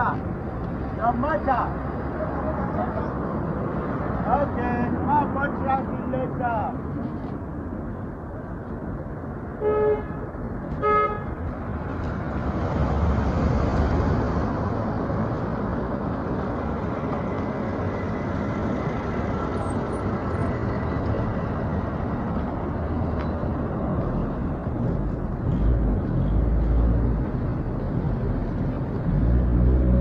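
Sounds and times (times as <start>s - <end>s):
street traffic: 0.0s - 30.0s
vehicle passing rumble: 11.5s - 30.0s.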